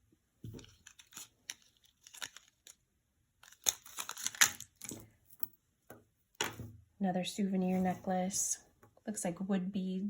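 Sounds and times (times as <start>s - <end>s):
plastic crinkling and rustling: 0.5s - 2.8s.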